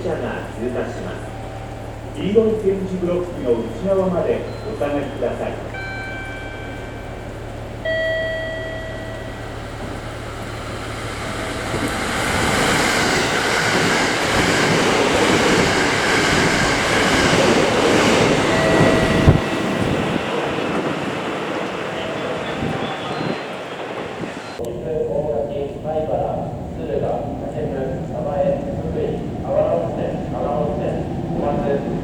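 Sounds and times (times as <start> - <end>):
train passing at speed: 0.0 - 32.0
horn-like tone: 7.8 - 9.6, 18.5 - 20.1.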